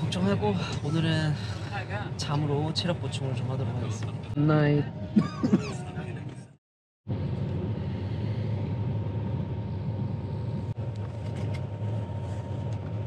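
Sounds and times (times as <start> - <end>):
train rumble: 0.0 - 13.0
thin steady whine: 7.1 - 13.0.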